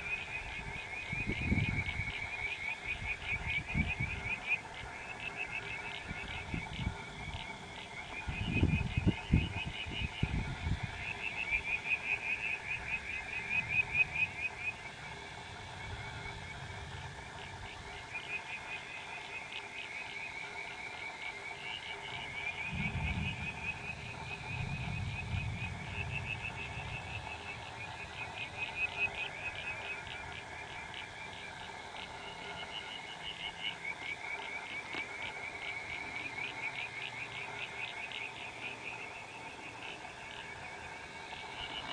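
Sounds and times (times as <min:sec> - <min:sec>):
frogs calling in trills: 0:00.0 - 0:41.9
low rumbles: 0:22.5 - 0:29.0.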